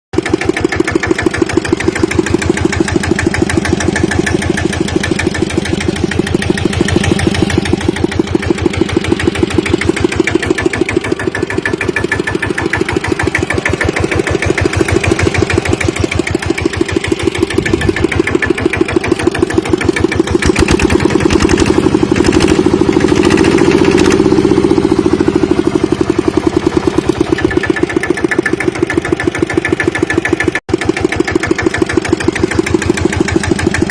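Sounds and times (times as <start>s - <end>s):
diesel engine chugging: 0.1s - 33.9s.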